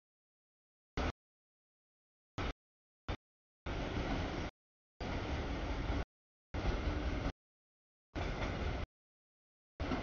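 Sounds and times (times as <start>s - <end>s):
freight train cars rolling: 3.7s - 6.0s, 6.6s - 7.3s, 8.2s - 8.9s, 9.8s - 10.0s.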